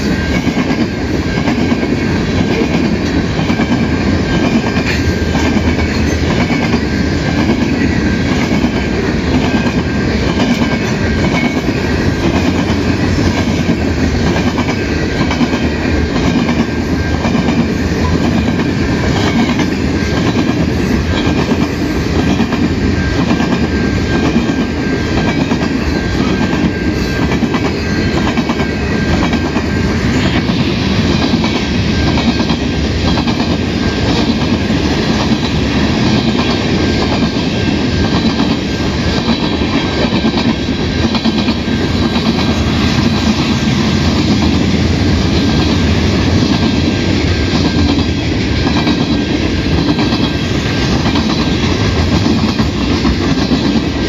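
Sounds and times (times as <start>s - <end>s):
freight train rumbling: 0.0s - 54.0s
clickety-clack of wheels: 45.4s - 54.0s.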